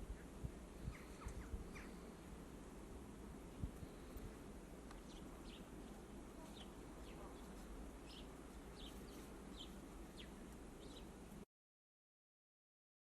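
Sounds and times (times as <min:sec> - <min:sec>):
finches chirping: 0:00.0 - 0:02.3, 0:04.9 - 0:11.2
faint low rumble: 0:00.0 - 0:11.4.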